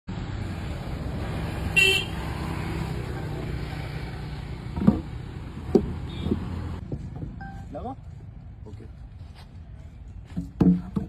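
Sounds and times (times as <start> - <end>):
sharp knocks: 4.7 - 7.4.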